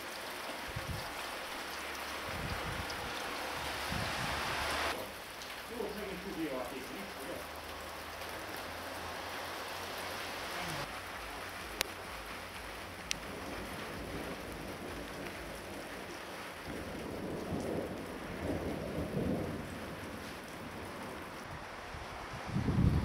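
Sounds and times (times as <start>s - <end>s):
heavy rain: 0.0s - 23.0s
low thunder rumbling: 2.2s - 5.0s, 11.2s - 23.0s.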